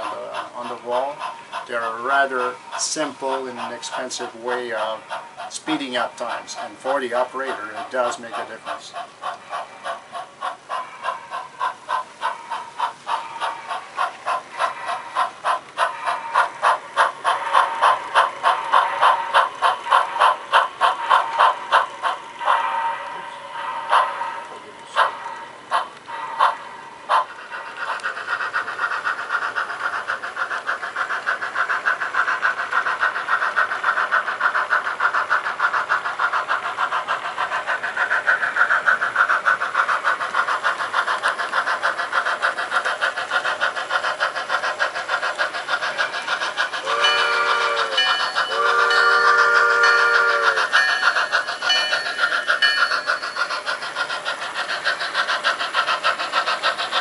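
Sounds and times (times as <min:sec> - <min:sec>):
model steam locomotive chuffing: 0:00.0 - 0:57.0
train whistle blasts: 0:46.8 - 0:50.7.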